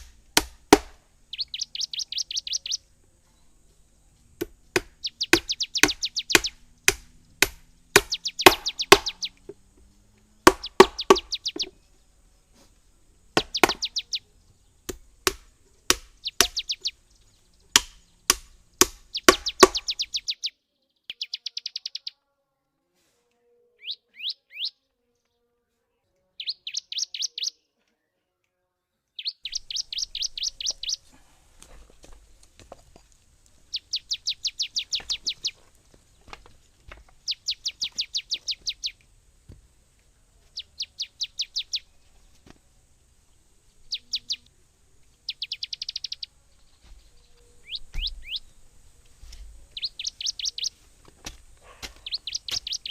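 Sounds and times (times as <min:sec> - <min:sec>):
sharp knocks: 0:00.0 - 0:01.0, 0:04.4 - 0:09.7, 0:10.4 - 0:11.7, 0:13.4 - 0:14.0, 0:14.9 - 0:16.7, 0:17.7 - 0:20.0
songbird falling notes: 0:00.0 - 0:12.2, 0:13.3 - 0:20.5, 0:29.2 - 0:31.0, 0:33.6 - 0:36.4, 0:37.0 - 0:39.1, 0:45.1 - 0:48.6, 0:49.6 - 0:50.8, 0:51.9 - 0:52.9.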